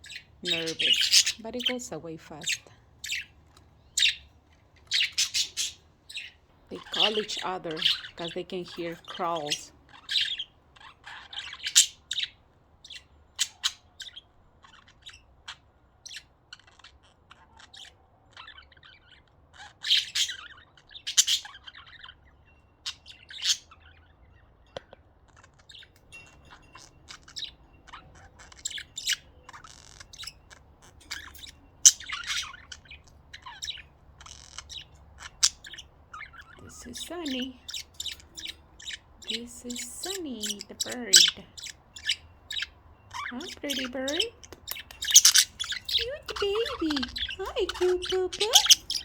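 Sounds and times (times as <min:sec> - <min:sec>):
budgerigars chirping: 0:00.0 - 0:24.7, 0:25.3 - 0:49.0.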